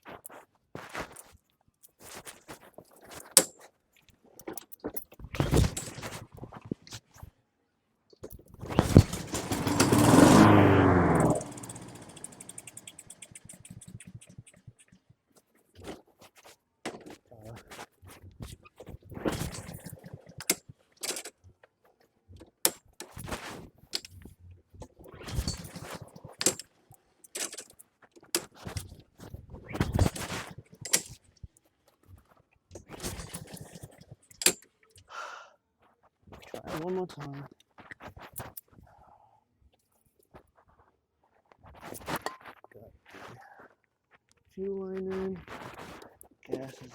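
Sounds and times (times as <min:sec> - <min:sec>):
lawn mower engine running: 0:08.7 - 0:13.4
engine ticking as it spins down: 0:08.8 - 0:14.5.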